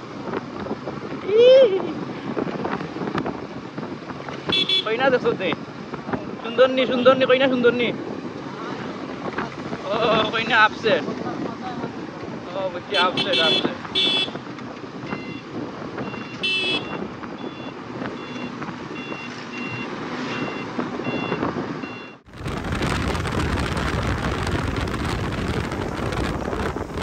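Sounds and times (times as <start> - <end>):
road traffic: 0.0 - 27.0
wind and road noise: 0.0 - 27.0
vehicle horn blast: 4.5 - 4.9, 13.0 - 14.4, 16.4 - 17.0.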